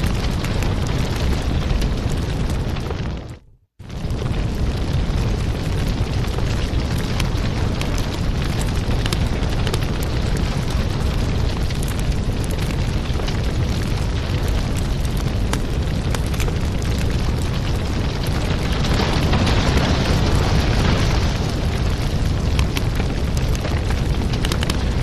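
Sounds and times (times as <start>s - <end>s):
fire crackling: 0.0s - 25.0s
sharp pops and snaps: 22.5s - 25.0s.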